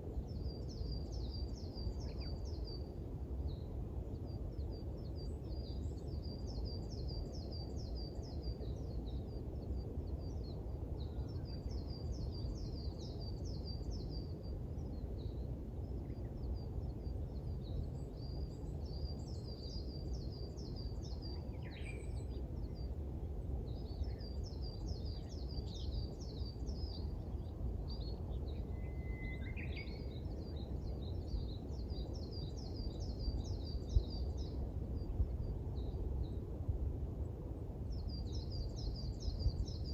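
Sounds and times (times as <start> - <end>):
lower bird calls: 28.5 - 30.2.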